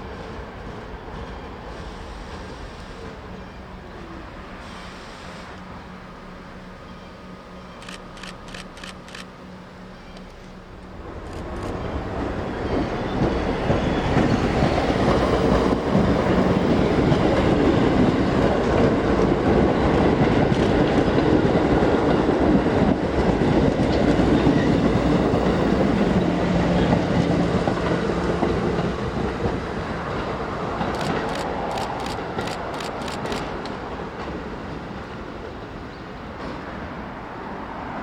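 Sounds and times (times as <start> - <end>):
sharp clicks: 7.8 - 9.3, 30.9 - 33.5
train wheels clattering on rails: 11.2 - 36.7.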